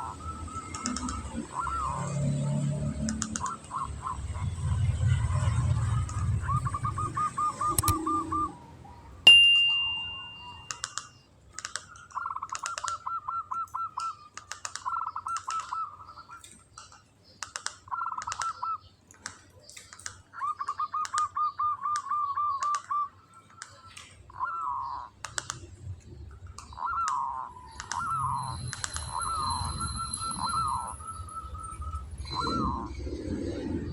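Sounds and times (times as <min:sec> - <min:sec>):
sharp clicks: 0:00.6 - 0:01.4, 0:03.0 - 0:03.6, 0:07.6 - 0:08.0, 0:10.7 - 0:13.0, 0:13.6 - 0:15.8, 0:16.4 - 0:24.2, 0:25.2 - 0:29.6
dove cooing: 0:05.3 - 0:09.2, 0:26.6 - 0:33.9
loud ding-like tone: 0:09.3 - 0:10.8.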